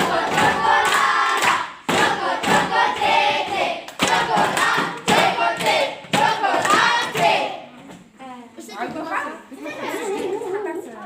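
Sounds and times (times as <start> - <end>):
hand claps: 0.0 - 7.4
children singing in unison: 0.0 - 7.6.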